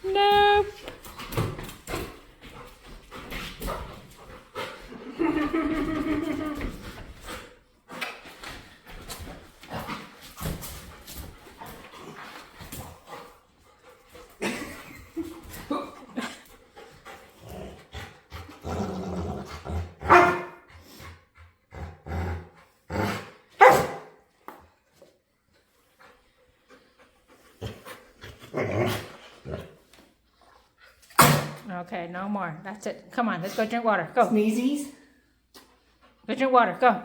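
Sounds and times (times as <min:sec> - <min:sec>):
dog barking: 0:20.1 - 0:20.6, 0:23.6 - 0:24.2.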